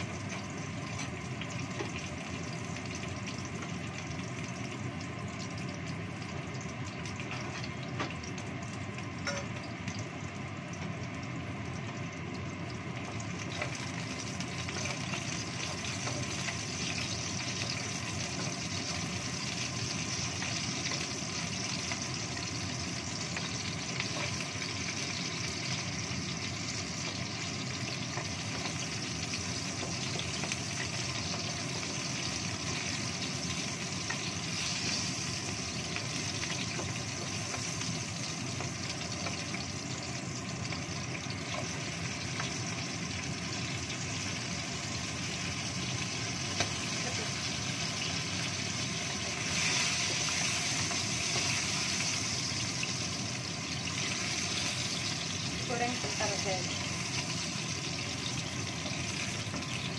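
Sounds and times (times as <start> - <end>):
chillies sizzling in oil: 0.0 - 59.9.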